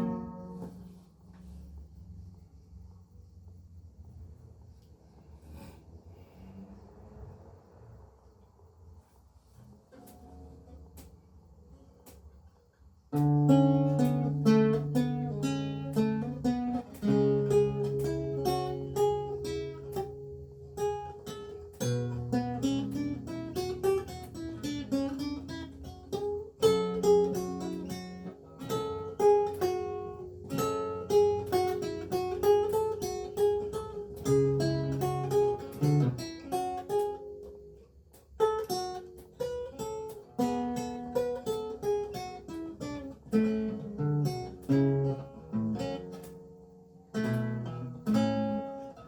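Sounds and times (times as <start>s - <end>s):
solo lute playing: 0.0s - 1.1s, 13.1s - 37.6s, 38.4s - 49.0s.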